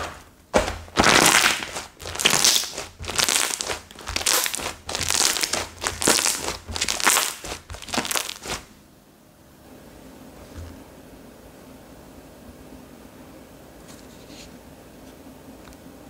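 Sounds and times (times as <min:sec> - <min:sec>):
slime squishing by hand: 0:00.0 - 0:08.7.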